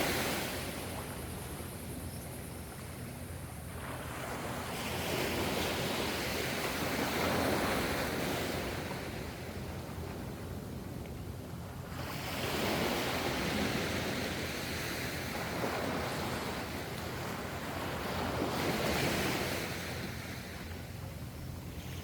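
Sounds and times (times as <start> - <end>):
ocean waves surging: 0.0 - 1.0.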